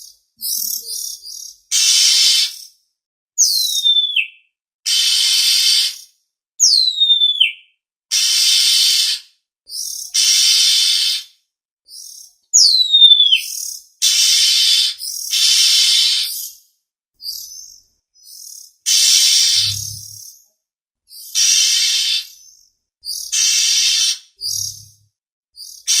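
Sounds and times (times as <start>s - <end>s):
bird harsh rasping calls: 0.4s - 2.7s, 4.9s - 6.1s, 8.1s - 11.3s, 12.6s - 16.6s, 18.3s - 20.3s, 21.1s - 24.9s, 25.7s - 26.0s
bird whistles sliding downward: 18.9s - 20.1s.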